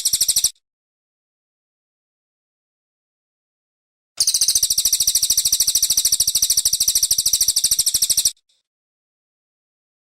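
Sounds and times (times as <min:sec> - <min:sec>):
bird singing rapid trill: 0:00.0 - 0:00.6, 0:04.2 - 0:08.6.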